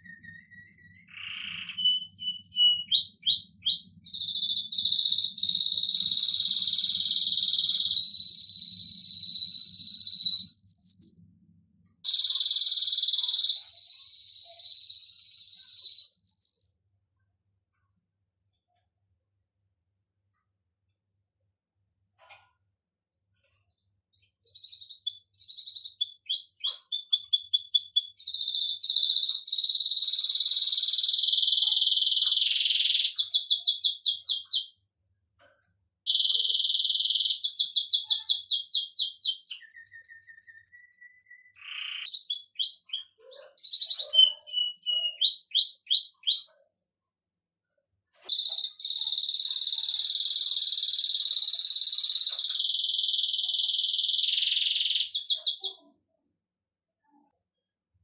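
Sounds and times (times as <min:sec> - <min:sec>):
canary singing trills: 0:00.0 - 0:11.3, 0:12.0 - 0:16.8, 0:24.2 - 0:34.8, 0:36.1 - 0:46.7, 0:48.2 - 0:56.0.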